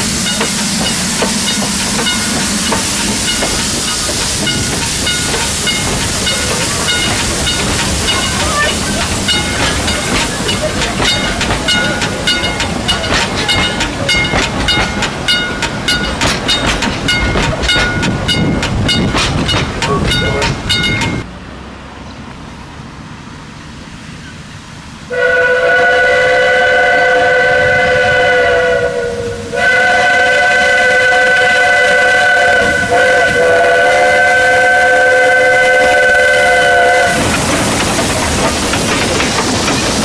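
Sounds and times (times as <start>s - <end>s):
steam locomotive chuffing: 0.0s - 21.4s, 23.2s - 40.0s
steam whistle blast: 25.1s - 37.6s.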